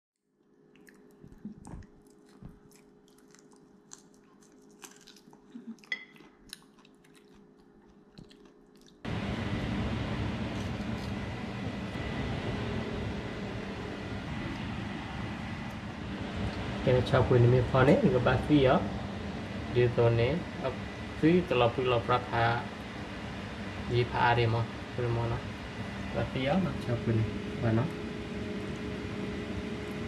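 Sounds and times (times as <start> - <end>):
chewing and crunching food: 0.2 - 9.1.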